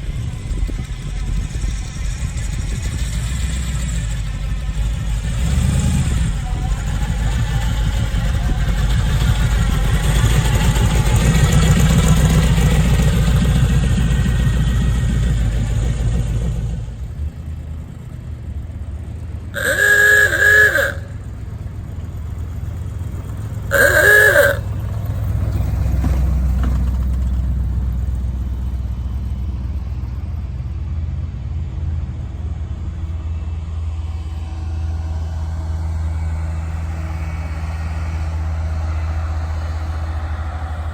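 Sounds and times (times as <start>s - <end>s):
car engines running: 0.0s - 40.9s
car horn honks: 19.6s - 21.3s, 23.7s - 24.7s.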